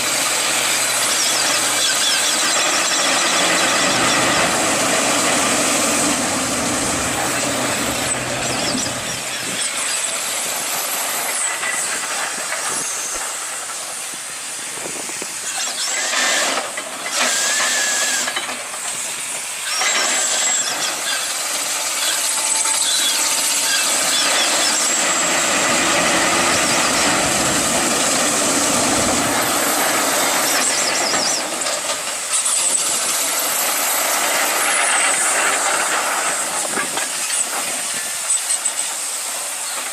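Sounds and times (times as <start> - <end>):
steam hissing: 0.0 - 39.9
machinery squealing: 0.8 - 13.3, 15.4 - 18.4, 19.6 - 21.4, 22.0 - 33.0.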